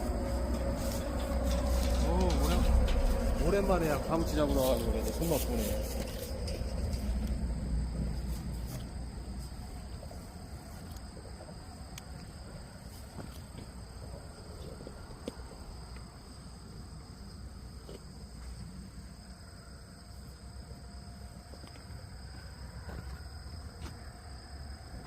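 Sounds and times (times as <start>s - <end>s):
low rumble: 0.0s - 10.5s
high-pitched insect chorus: 0.0s - 25.0s.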